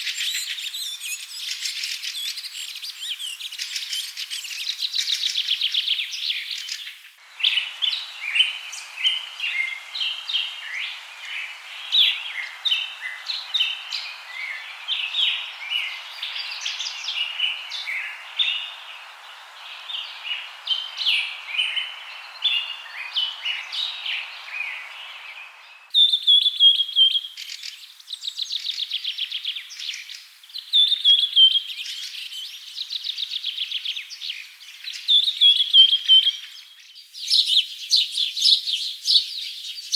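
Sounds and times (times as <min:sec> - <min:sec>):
steady hiss: 0:00.0 - 0:26.0
birds chirping: 0:00.0 - 0:28.1.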